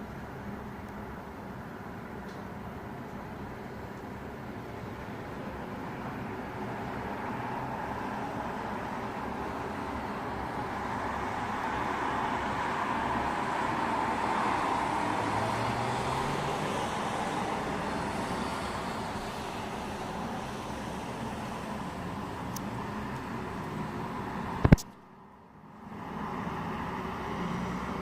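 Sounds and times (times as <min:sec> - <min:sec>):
tyres hissing on wet road: 0:05.0 - 0:24.8, 0:25.8 - 0:28.0.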